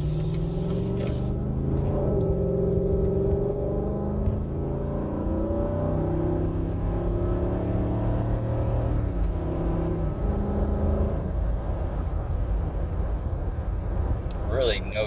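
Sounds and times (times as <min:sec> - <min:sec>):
engine exhaust rumble: 0:00.0 - 0:04.6.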